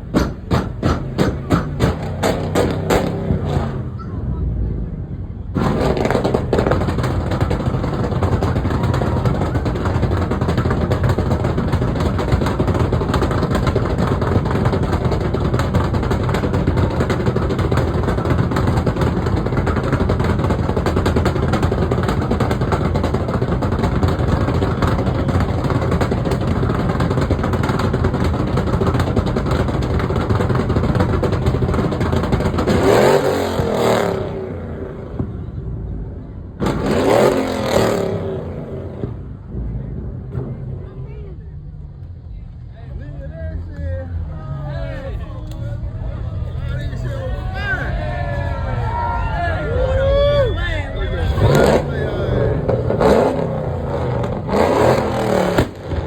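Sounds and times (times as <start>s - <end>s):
car engine revving high: 1.0s - 4.0s, 5.6s - 35.3s, 36.6s - 40.8s, 51.1s - 56.0s.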